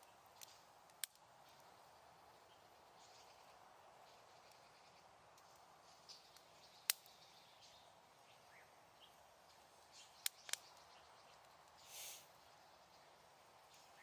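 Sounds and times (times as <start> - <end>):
bonfire crackling: 0.0 - 14.0
soft steady hiss: 0.0 - 14.0
sharp fire pops: 0.3 - 1.6, 5.3 - 7.2, 10.2 - 10.8.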